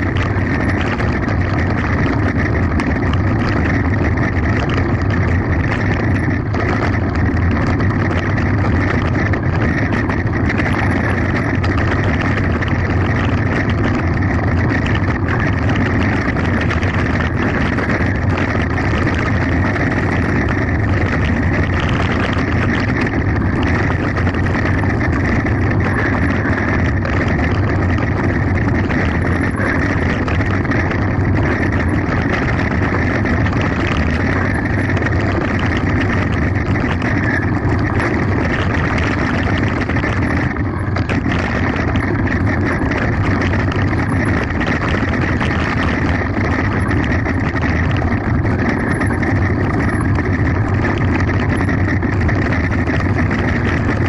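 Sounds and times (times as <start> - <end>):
bike rattling: 0.0 - 54.0
wind noise on microphone: 0.0 - 54.0.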